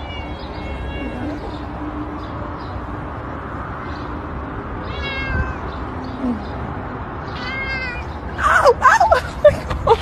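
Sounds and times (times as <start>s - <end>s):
cat meowing: 0.0s - 1.7s, 4.8s - 5.8s, 7.2s - 8.2s.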